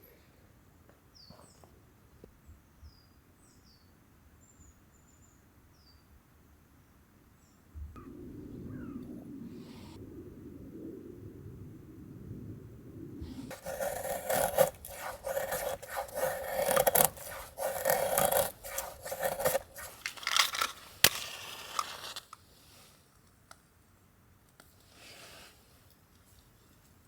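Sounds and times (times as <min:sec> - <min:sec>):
scraping strokes: 0:13.2 - 0:22.3.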